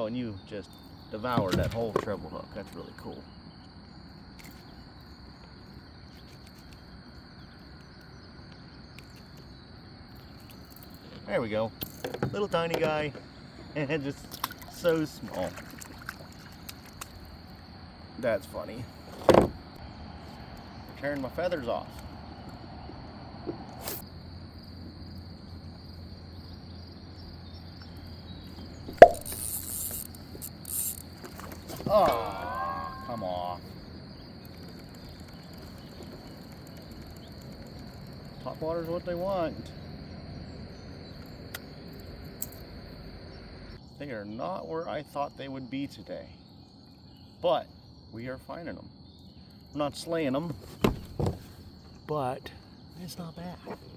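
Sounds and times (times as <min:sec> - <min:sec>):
insects chirring: 0:00.0 - 0:53.9
plop into river water: 0:14.3 - 0:17.2, 0:28.9 - 0:29.4.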